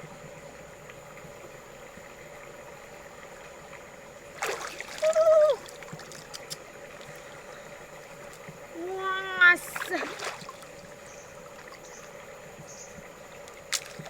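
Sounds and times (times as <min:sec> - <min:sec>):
shallow water splashing: 0:04.2 - 0:14.0.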